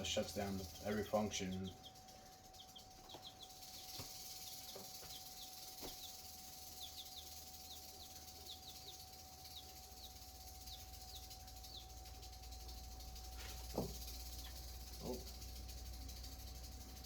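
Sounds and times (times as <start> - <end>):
faint steady hum: 0.0 - 17.0
chick peeping: 2.5 - 12.0.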